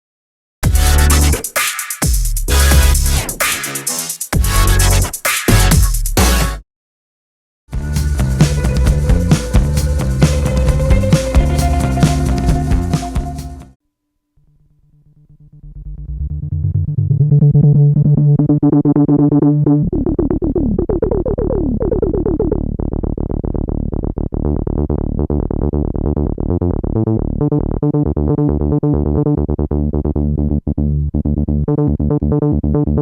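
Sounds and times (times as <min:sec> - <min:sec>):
analogue synthesizer playing: 0:00.6 - 0:01.4, 0:02.5 - 0:05.0, 0:07.8 - 0:13.8.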